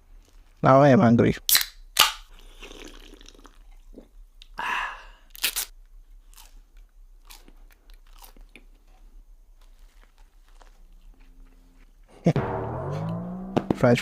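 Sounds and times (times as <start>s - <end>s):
crunchy food being chewed: 5.3s - 11.6s.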